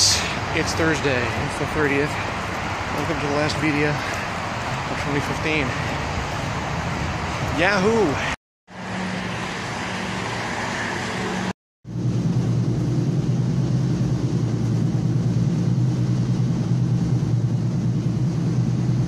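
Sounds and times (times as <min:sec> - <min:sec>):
train rumble and hum: 0:10.2 - 0:19.0
low hum background noise: 0:11.9 - 0:19.0.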